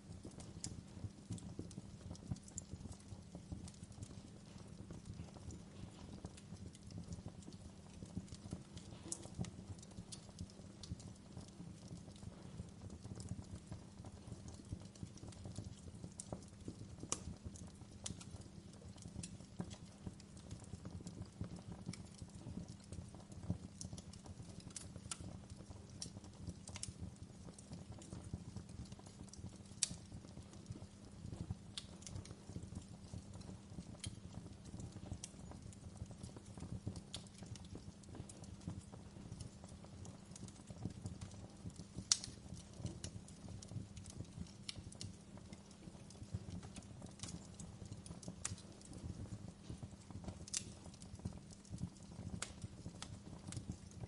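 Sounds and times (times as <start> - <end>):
low rumble of flames: 0.0 - 54.0
wood fire crackling: 0.0 - 54.0.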